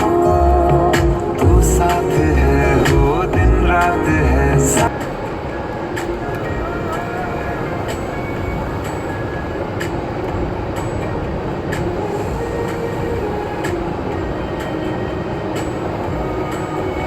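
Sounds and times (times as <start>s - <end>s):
low machinery rumble: 0.0s - 17.0s.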